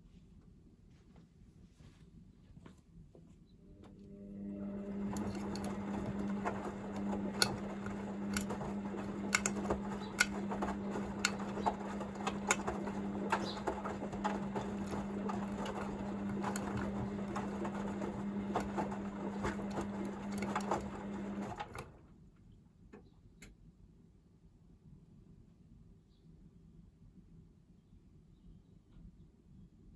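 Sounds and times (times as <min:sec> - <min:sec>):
washing machine motor hum: 0:03.6 - 0:22.2
water and laundry churning: 0:04.2 - 0:22.0.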